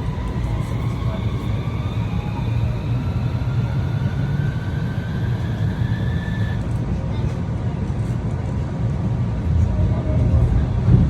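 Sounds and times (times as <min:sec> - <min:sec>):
electric motor whine: 0:00.0 - 0:06.7
wheels rumbling on rail: 0:00.0 - 0:11.0.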